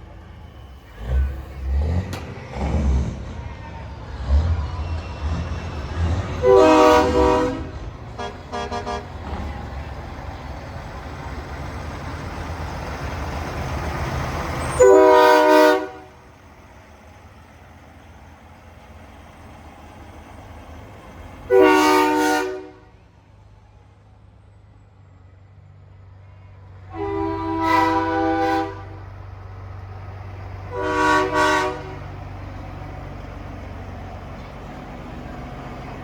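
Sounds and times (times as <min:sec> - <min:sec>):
truck engines rumbling: 0:00.0 - 0:36.0
truck air horn blasts: 0:06.4 - 0:09.2, 0:14.8 - 0:16.2, 0:21.5 - 0:23.0, 0:26.9 - 0:29.0, 0:30.7 - 0:32.1.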